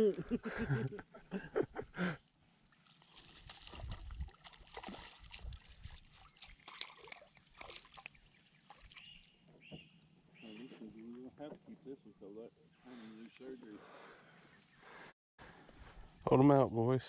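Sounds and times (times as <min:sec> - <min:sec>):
water splashing around boat: 0:02.6 - 0:09.8.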